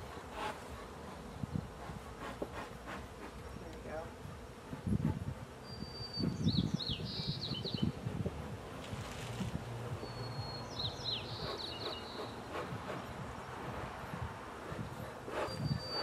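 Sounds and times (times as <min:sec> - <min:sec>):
honey bees humming: 0:00.0 - 0:16.0
songbird singing: 0:05.5 - 0:16.0.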